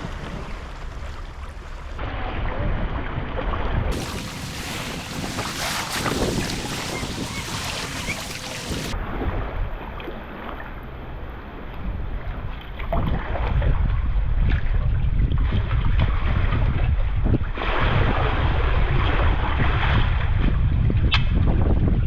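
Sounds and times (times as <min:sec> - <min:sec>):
water sloshing around kayak: 0:03.9 - 0:09.0
wind buffeting microphone: 0:03.9 - 0:09.5.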